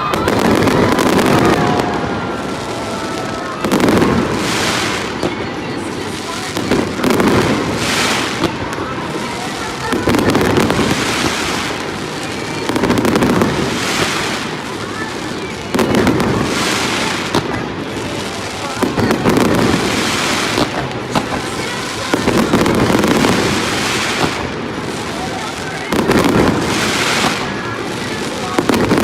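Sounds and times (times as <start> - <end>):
fireworks booming: 0.0 - 29.0
fireworks crackling pops: 0.0 - 29.0.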